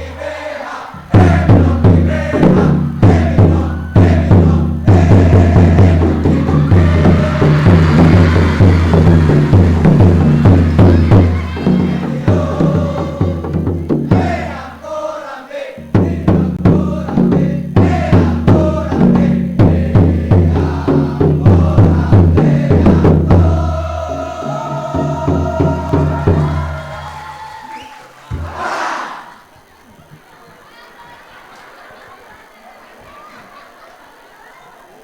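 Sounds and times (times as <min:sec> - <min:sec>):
boys' choir singing: 0:00.0 - 0:29.5
bass and drums beat: 0:01.0 - 0:14.6, 0:15.8 - 0:27.4.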